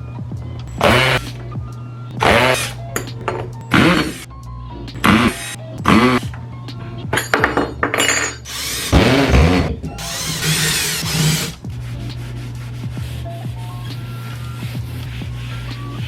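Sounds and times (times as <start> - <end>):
scraping and rubbing: 9.0 - 16.0.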